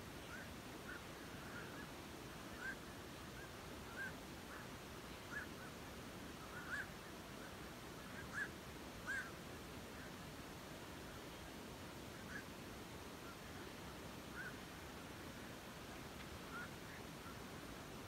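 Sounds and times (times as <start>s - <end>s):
steady background hiss: 0.0s - 18.0s
birds calling: 6.4s - 9.4s.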